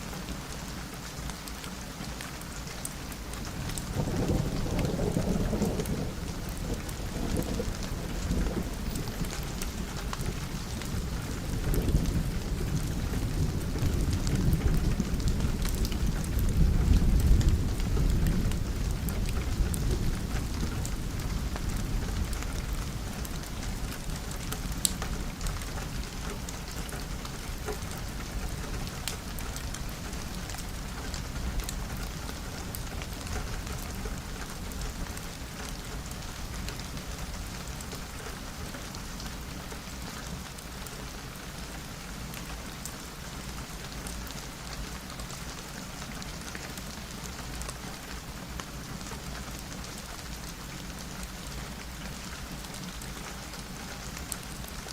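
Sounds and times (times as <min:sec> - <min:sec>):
rain pattering on a window: 0:00.0 - 0:54.9
thunder rumbling: 0:03.5 - 0:35.1.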